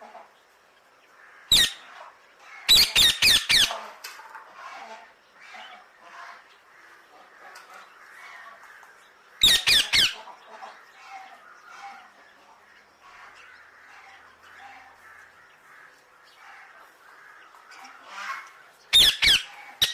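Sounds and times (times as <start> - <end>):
parrot screeching: 1.5 - 1.8, 9.4 - 10.2.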